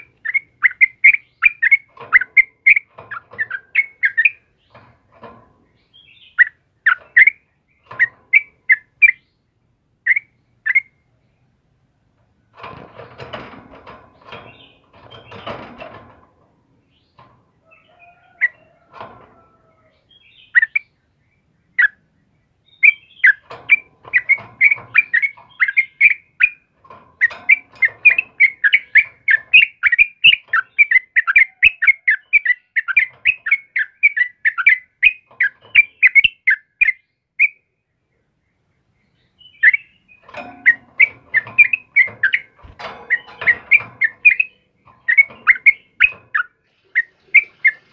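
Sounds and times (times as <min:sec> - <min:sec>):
bird singing rapid chirps: 0:00.0 - 0:04.8, 0:05.7 - 0:11.2, 0:19.9 - 0:47.9.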